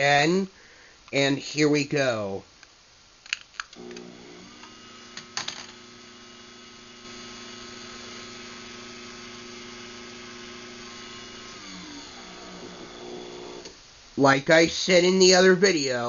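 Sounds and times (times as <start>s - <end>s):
garage door opener motor humming: 3.8s - 13.8s.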